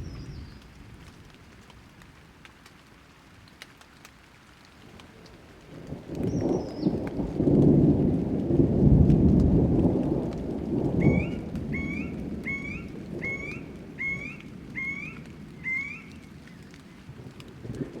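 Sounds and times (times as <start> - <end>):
thunder rumbling: 0.0 - 2.0, 5.1 - 18.0
light rain patter: 0.0 - 18.0
bird calling upward-sliding note: 11.0 - 16.6.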